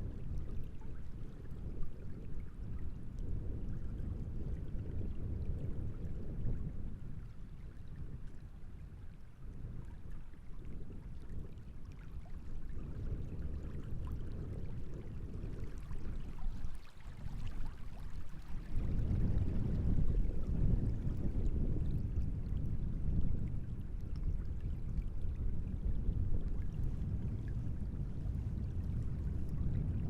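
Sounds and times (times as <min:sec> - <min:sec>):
wind on microphone: 0:00.0 - 0:30.0.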